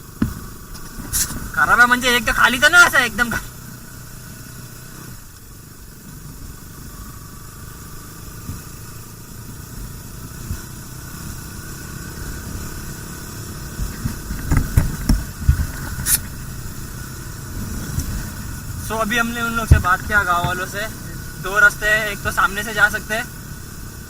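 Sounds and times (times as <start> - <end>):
low thumps: 0.0 - 1.6, 13.7 - 16.8, 17.6 - 21.3
sharp crackle: 0.0 - 2.2
motorcycle engine running: 0.0 - 24.0.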